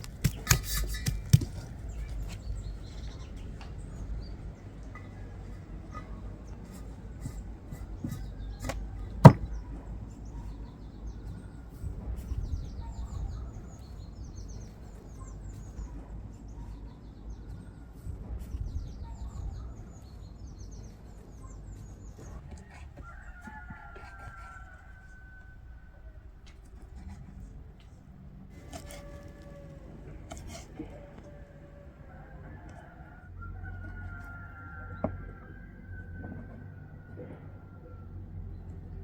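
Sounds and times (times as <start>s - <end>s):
small birds chirping: 0.0s - 25.4s.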